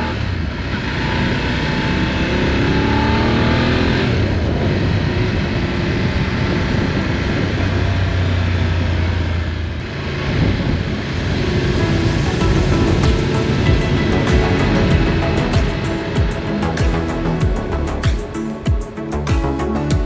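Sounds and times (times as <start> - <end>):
motorcycle engine accelerating: 0.0 - 20.0
wind noise rushing: 9.8 - 20.0.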